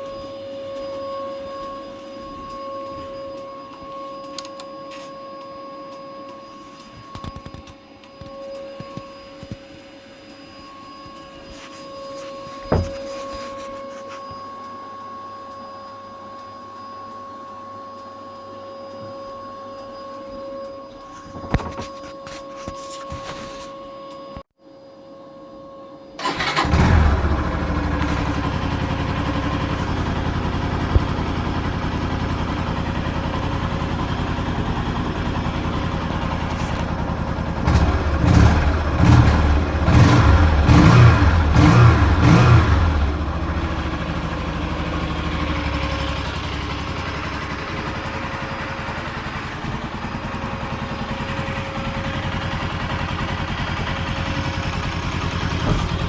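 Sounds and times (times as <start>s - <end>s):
motorcycle engine idling and revving: 26.2s - 56.0s.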